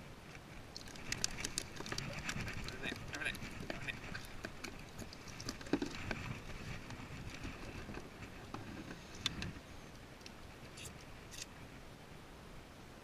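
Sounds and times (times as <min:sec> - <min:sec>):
fishing gear clicking and knocking: 0:00.8 - 0:09.5.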